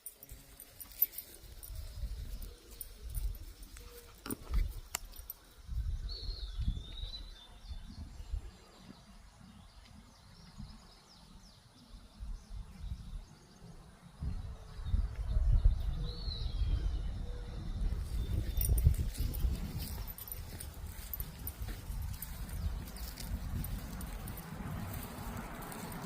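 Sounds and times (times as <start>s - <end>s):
low rumbling on microphone: 14.2s - 26.0s.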